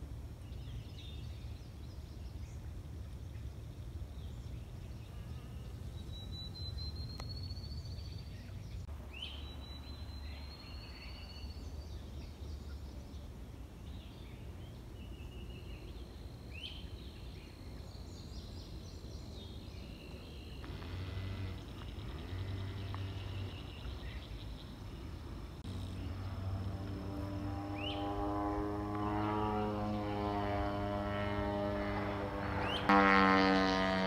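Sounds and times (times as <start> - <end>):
birds calling with high trills: 0.4 - 30.3, 31.0 - 33.5
steady low rumble: 11.6 - 32.9.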